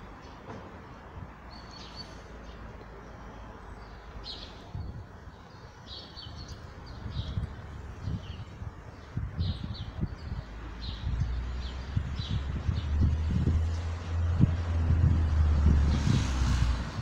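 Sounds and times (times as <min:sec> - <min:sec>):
small birds chirping: 0:01.4 - 0:14.0.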